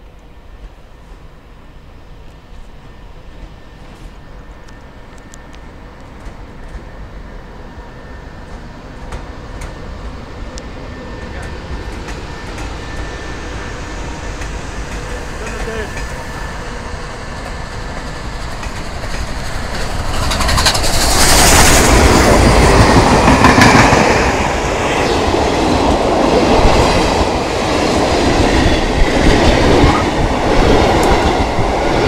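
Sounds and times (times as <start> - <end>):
steam train rumble: 0.0 - 32.0
wheels clattering over rails: 17.3 - 25.2.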